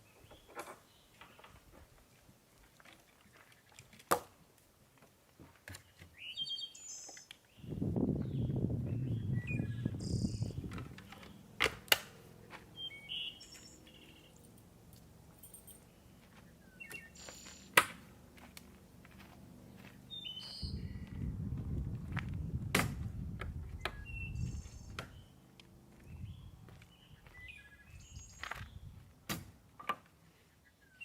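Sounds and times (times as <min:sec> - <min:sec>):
small birds chirping: 0:05.7 - 0:11.6, 0:12.2 - 0:17.8, 0:19.2 - 0:21.3, 0:23.7 - 0:29.0.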